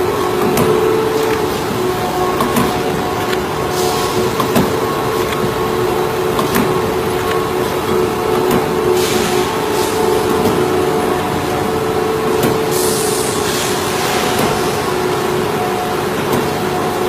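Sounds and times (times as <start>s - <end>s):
machine hissing: 0.0s - 16.5s
punching machine humming and rattling: 0.0s - 17.0s.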